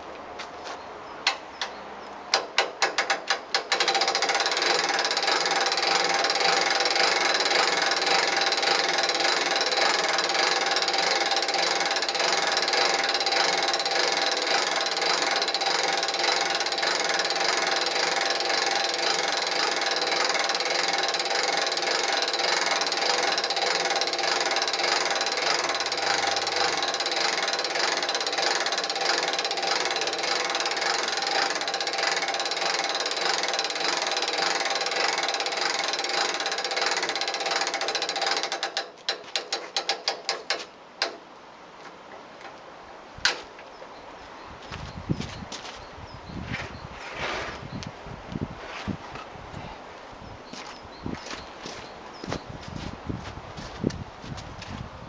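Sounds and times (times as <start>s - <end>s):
mechanism ratcheting clicks: 1.3s - 41.2s.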